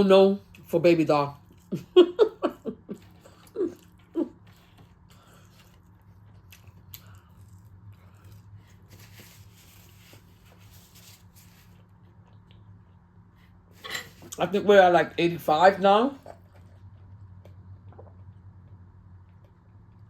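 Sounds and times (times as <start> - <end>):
chewing and mouth clicks: 3.0 - 8.8, 12.0 - 13.1, 16.3 - 20.0
soft rustle: 8.2 - 12.0.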